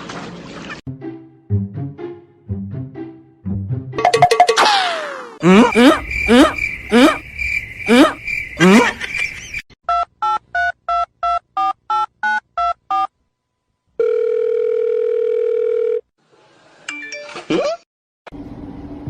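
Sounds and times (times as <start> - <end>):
steady telephone tone: 14.0 - 16.1.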